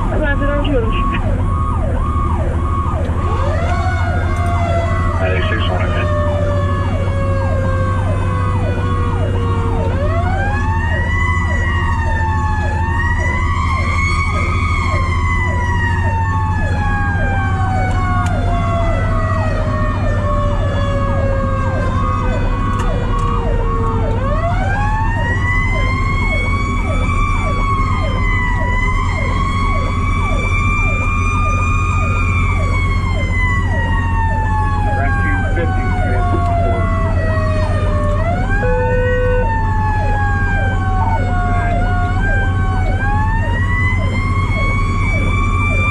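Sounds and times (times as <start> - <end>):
truck engine and road drone: 0.0 - 45.9
fast-yelping electronic siren: 0.2 - 6.7, 25.2 - 45.9.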